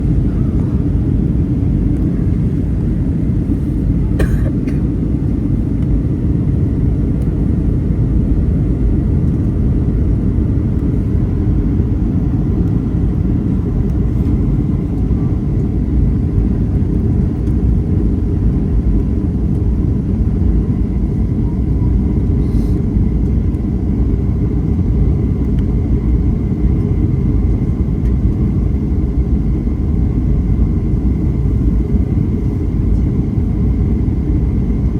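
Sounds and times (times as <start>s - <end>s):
airplane cabin engine rumble: 0.0s - 34.9s.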